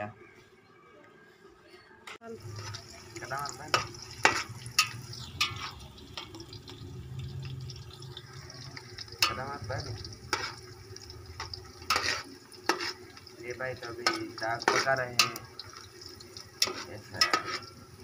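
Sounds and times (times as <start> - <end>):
onions sizzling in oil: 2.2 - 18.0
spoon scraping a pot: 3.7 - 6.4, 10.2 - 15.9, 16.6 - 17.8.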